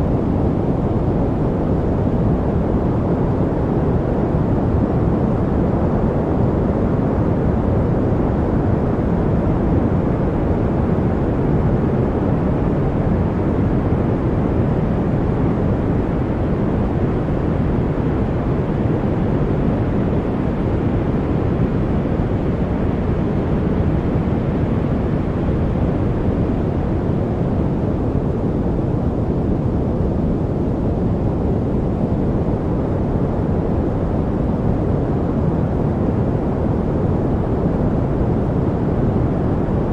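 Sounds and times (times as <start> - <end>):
low rushing white noise: 0.0 - 39.9.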